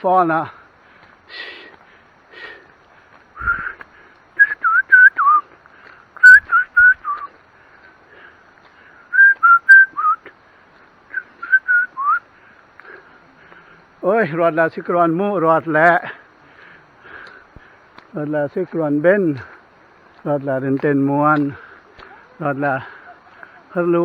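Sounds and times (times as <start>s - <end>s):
whistled notes bending in pitch: 4.4s - 5.4s, 6.2s - 7.3s, 9.1s - 10.2s, 11.1s - 12.2s.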